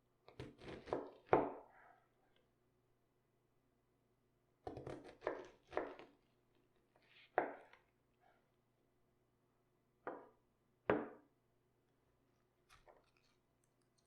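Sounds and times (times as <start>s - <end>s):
knife cutting cabbage on board: 0.3s - 1.6s, 4.7s - 6.1s.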